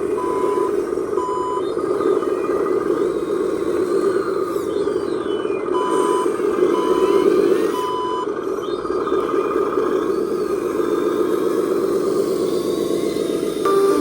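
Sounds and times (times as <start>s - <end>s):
steady drone: 10.4s - 14.0s
reversing beeper: 12.7s - 14.0s.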